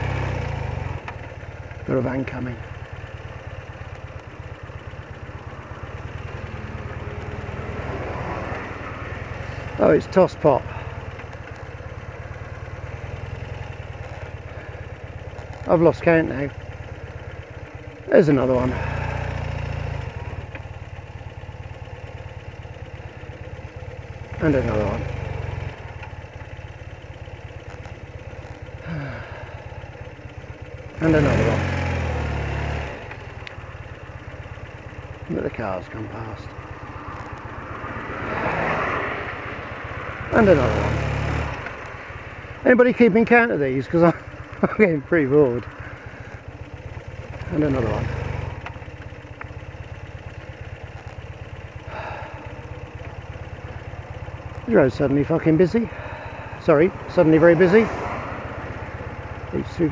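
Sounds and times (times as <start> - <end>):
motorcycle engine idling: 0.0 - 59.9
van passing: 0.0 - 59.9
vehicle passing by: 5.6 - 11.0, 36.8 - 46.2, 54.6 - 59.9.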